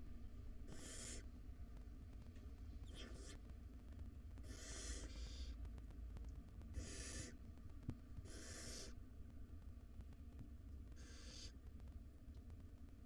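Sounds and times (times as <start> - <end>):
steady low hum: 0.0 - 13.0
owl nestlings hissing calls: 0.7 - 1.3, 2.9 - 3.4, 4.4 - 5.5, 6.7 - 7.4, 8.2 - 9.0, 11.0 - 11.6.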